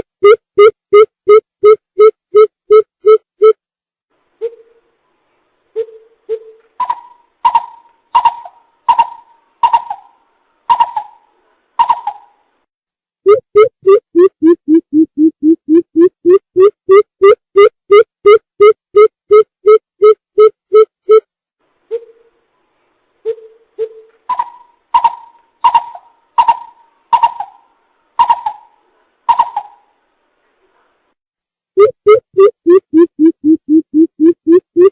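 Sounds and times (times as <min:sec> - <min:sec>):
bird deep hooting calls: 0:05.8 - 0:12.4, 0:23.3 - 0:29.9.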